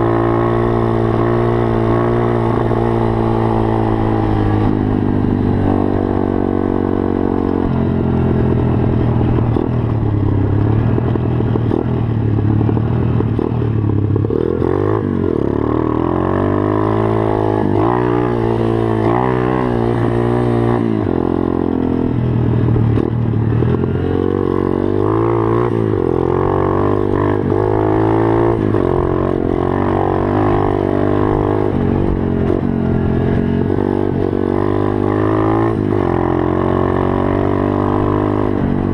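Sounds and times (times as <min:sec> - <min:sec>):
pit bike engine revving: 0:00.0 - 0:22.1.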